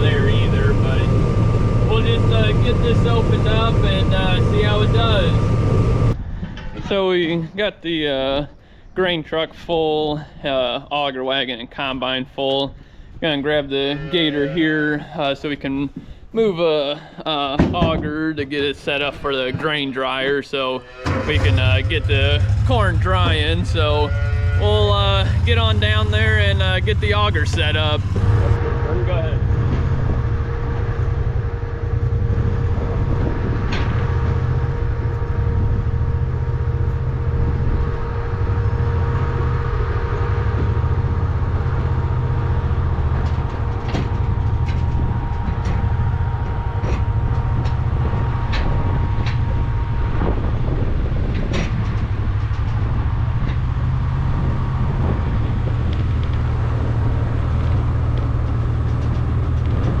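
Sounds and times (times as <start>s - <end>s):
faint steady whine: 0.0s - 7.3s
vehicle engine droning: 0.0s - 8.8s, 12.8s - 60.0s
light rattles and clicks: 57.2s - 60.0s.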